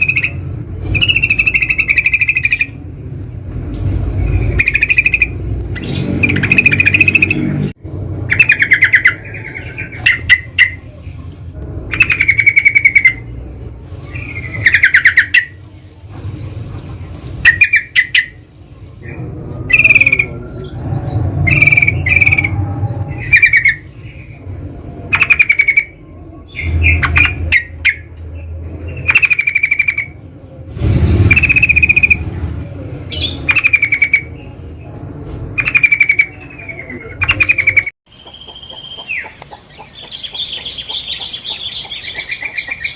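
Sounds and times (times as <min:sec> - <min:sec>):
bird chattering calls: 0:00.0 - 0:02.8, 0:03.8 - 0:07.6, 0:08.3 - 0:10.9, 0:11.9 - 0:13.3, 0:14.1 - 0:15.6, 0:17.4 - 0:18.4, 0:19.0 - 0:20.8, 0:21.4 - 0:24.4, 0:25.1 - 0:28.1, 0:29.0 - 0:30.2, 0:30.8 - 0:32.2, 0:33.1 - 0:34.4, 0:35.6 - 0:42.9
steady low rumble: 0:00.0 - 0:17.5, 0:18.3 - 0:29.2.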